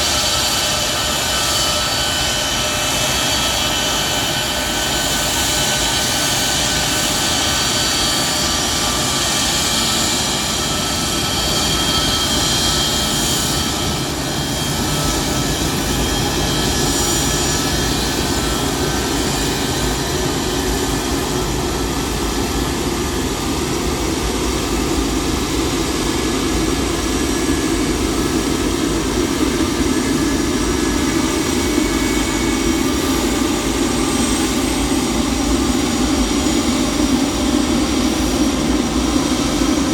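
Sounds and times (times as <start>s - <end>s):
high engine whine: 0.0s - 39.9s
jet engines running: 0.0s - 39.9s.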